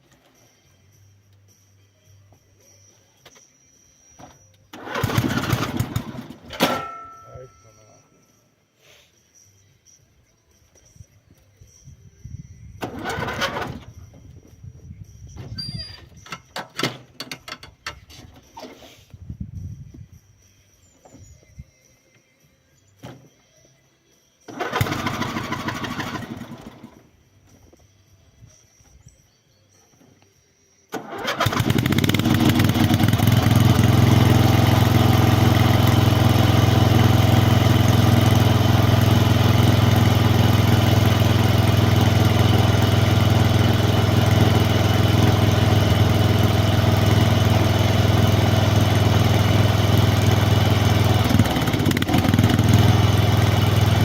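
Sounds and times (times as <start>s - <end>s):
snowblower engine starting: 4.7s - 6.9s, 12.8s - 14.0s, 24.5s - 27.1s, 30.9s - 54.0s.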